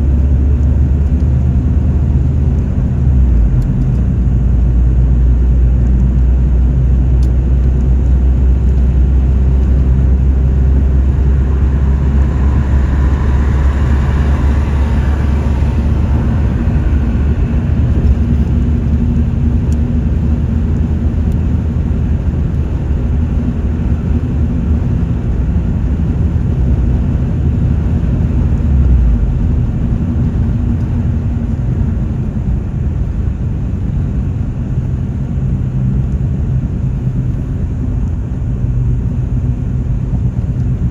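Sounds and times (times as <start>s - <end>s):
car engine and road rumble: 0.0s - 40.9s
brief rushing sound: 8.4s - 20.6s.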